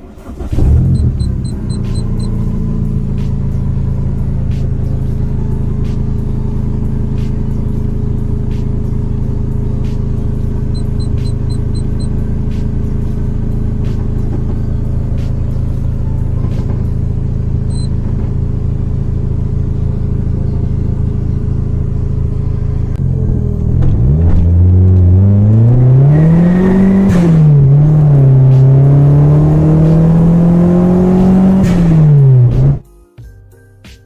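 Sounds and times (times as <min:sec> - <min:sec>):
car engine revving: 0:00.0 - 0:32.8.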